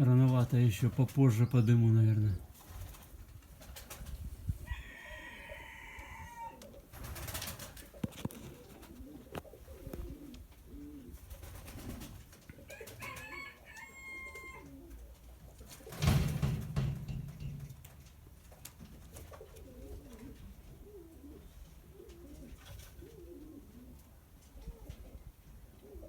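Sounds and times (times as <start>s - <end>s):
pigeons cooing: 0.0s - 17.9s, 18.6s - 26.0s
rooster crowing: 4.6s - 6.6s, 12.7s - 14.8s.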